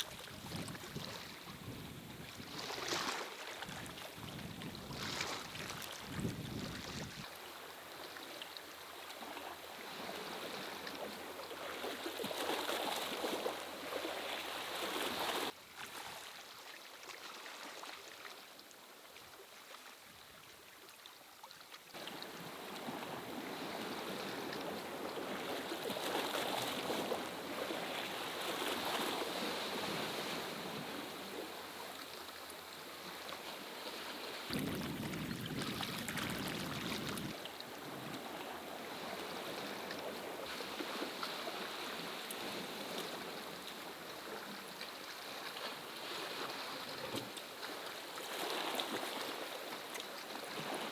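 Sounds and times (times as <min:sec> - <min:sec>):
sea waves: 0:00.0 - 0:08.4, 0:22.0 - 0:46.9.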